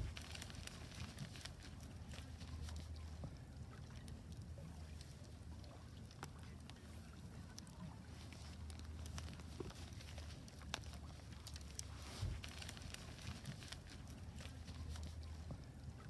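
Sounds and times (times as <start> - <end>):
wood fire crackling: 0.0 - 2.7, 7.6 - 15.4
low steady rumble: 0.0 - 16.0.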